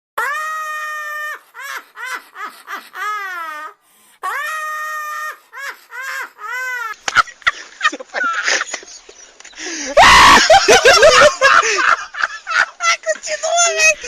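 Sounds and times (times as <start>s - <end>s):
high-pitched wailing cry: 0.2s - 7.0s.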